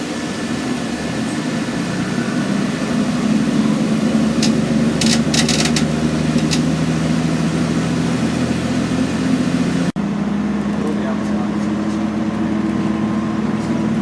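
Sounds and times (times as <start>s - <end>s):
bus diesel engine running: 0.0s - 14.0s
short sharp clicks: 4.4s - 6.8s.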